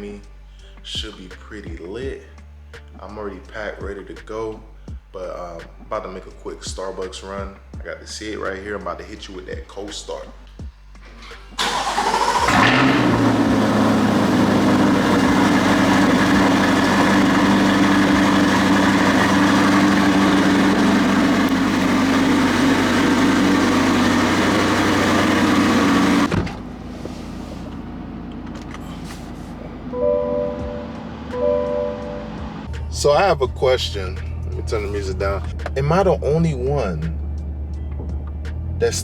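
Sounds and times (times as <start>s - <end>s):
car engine starting and idling: 10.4s - 39.0s.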